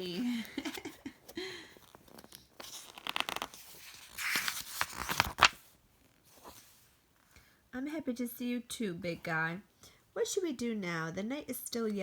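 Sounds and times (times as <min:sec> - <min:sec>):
book page turning: 0:01.7 - 0:06.8
paper rustling and crinkling: 0:01.8 - 0:06.8.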